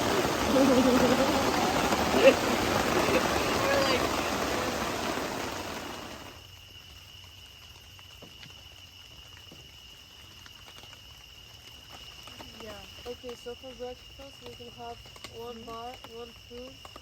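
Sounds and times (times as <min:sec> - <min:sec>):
rushing water noise: 0:00.0 - 0:06.4
crickets trilling: 0:00.0 - 0:17.0.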